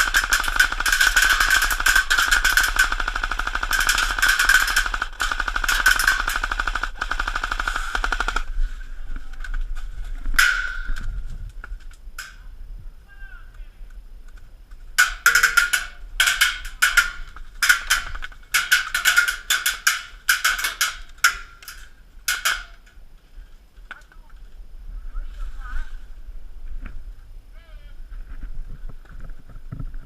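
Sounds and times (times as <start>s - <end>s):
airsoft rifle firing bursts: 0.0s - 8.5s.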